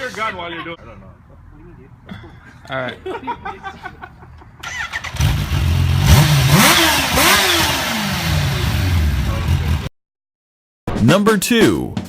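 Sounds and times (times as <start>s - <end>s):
motorcycle engine starting and revving: 4.7s - 9.0s.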